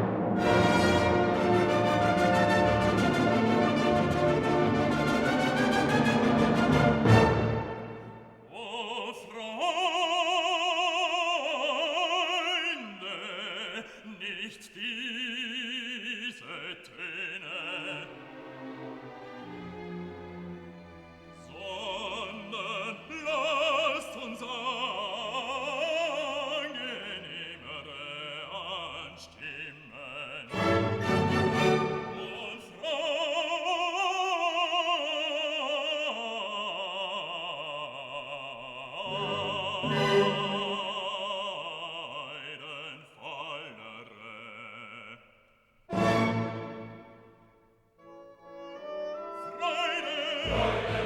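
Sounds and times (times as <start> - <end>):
orchestral music: 0.0 - 8.5, 17.6 - 27.4, 30.5 - 33.4, 39.0 - 41.6, 45.9 - 51.0
operatic singing: 0.0 - 47.4, 48.0 - 51.0.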